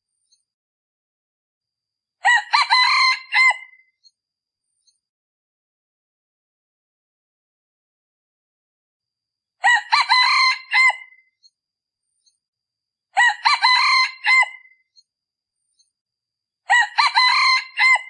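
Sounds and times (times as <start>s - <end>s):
rooster crowing: 2.2s - 3.7s, 9.6s - 11.2s, 13.2s - 14.7s, 16.7s - 18.0s.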